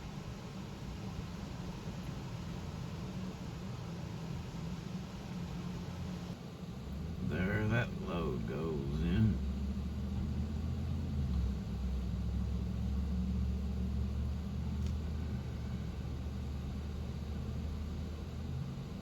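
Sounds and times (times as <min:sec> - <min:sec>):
engine idling: 0:07.0 - 0:18.2.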